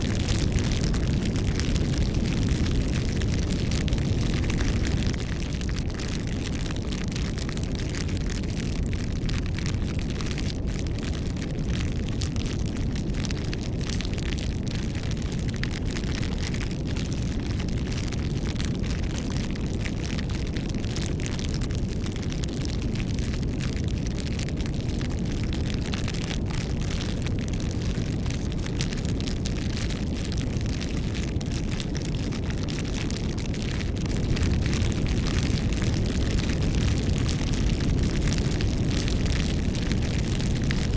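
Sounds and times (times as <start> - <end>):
burning wood crackling and popping: 0.0 - 40.9
low rumble of flames: 0.0 - 40.9.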